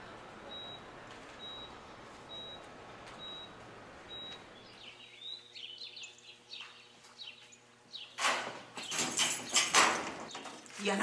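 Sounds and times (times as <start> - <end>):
bird chirping: 3.2 - 8.2.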